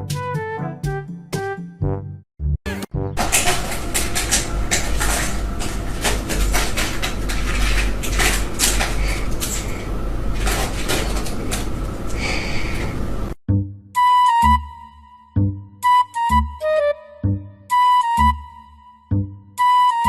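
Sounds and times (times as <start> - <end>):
household knocks and rattles: 3.2 - 12.1.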